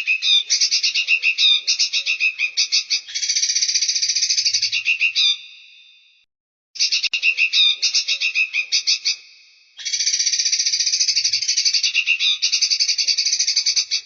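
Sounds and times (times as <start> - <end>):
songbird trilling: 0.0 - 5.5, 9.8 - 14.0.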